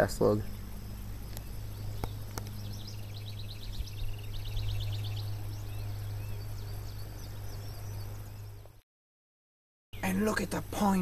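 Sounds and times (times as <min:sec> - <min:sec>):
songbird trills: 0:00.0 - 0:08.8, 0:10.0 - 0:11.0
steady low hum: 0:00.0 - 0:08.8
high bird chirps: 0:00.3 - 0:08.6.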